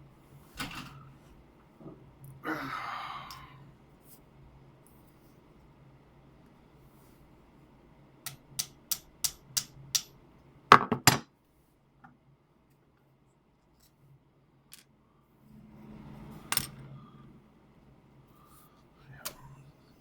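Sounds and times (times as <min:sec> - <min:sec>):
soft rustle of handling: 0:04.0 - 0:07.7.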